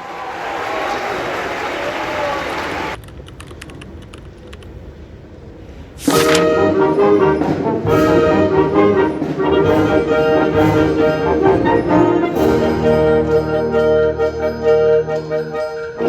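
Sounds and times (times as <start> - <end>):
wind band playing: 6.0 - 16.0
brass held chords: 6.1 - 16.0.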